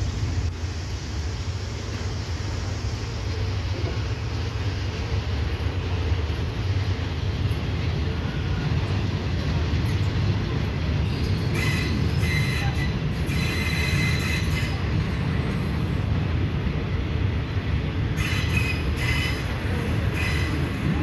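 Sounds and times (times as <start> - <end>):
train wheels rumbling on track: 0.0 - 21.0.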